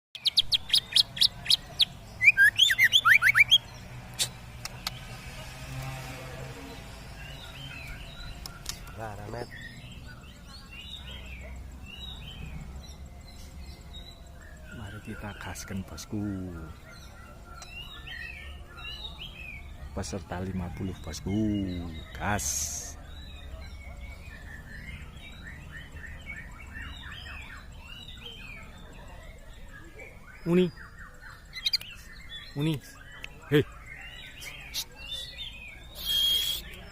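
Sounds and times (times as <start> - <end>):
bird singing sharp whistled notes: 0.2 - 4.4, 23.1 - 36.9.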